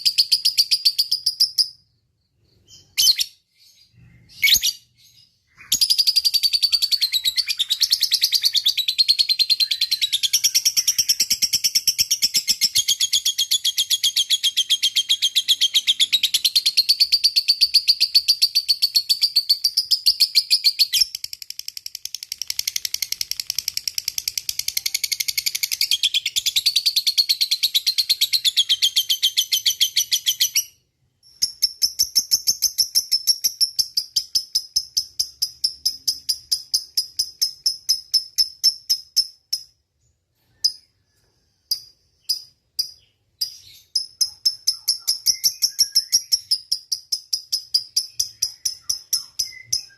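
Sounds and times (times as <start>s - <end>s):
high pulsing bird chirp: 0.0s - 49.9s.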